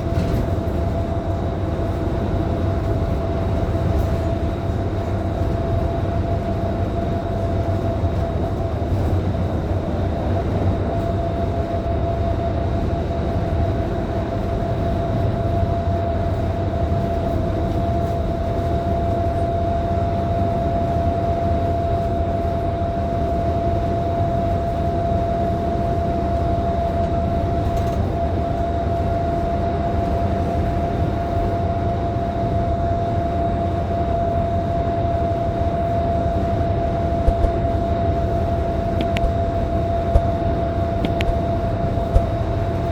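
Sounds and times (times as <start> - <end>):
bus engine and road rumble: 0.0 - 42.9
steady whine: 25.0 - 42.9.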